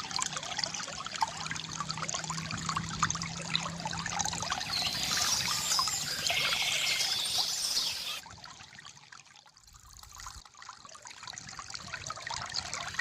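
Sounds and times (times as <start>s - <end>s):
stream gurgling over stones: 0.0s - 13.0s
birds singing: 4.5s - 8.2s.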